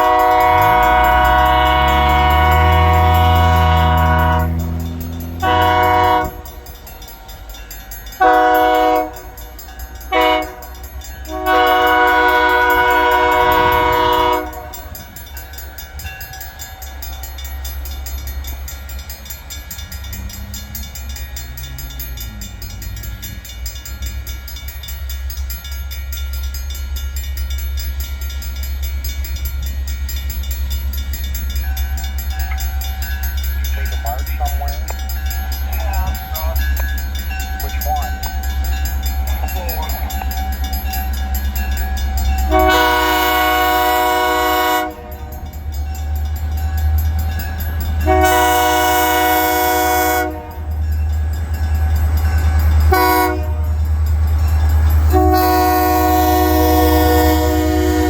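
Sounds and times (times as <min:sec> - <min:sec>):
locomotive air horn blasts: 0:00.0 - 0:06.6, 0:08.2 - 0:09.4, 0:10.1 - 0:15.1, 0:42.4 - 0:45.6, 0:48.0 - 0:50.8, 0:52.9 - 0:53.8, 0:55.1 - 0:58.0
train passing with low rumble: 0:00.0 - 0:58.0.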